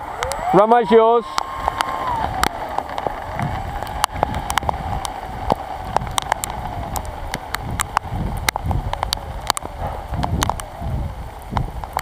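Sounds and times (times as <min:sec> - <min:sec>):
model plane motor whine: 0:00.0 - 0:07.6
rain drops ticking on microphone: 0:00.0 - 0:12.0
wind rumble on microphone: 0:01.2 - 0:12.0.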